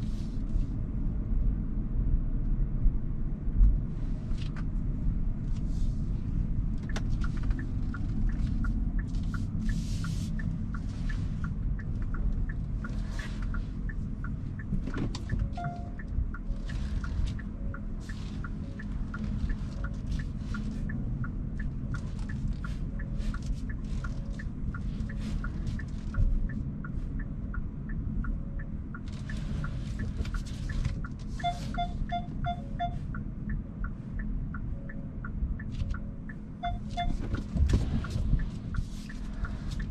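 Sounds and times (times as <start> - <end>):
passing traffic: 0.0 - 39.9
turn signal ticking: 3.4 - 39.9
quick beeps: 15.3 - 17.8, 31.4 - 33.2, 36.6 - 37.2
car tyre rumble: 36.8 - 39.9.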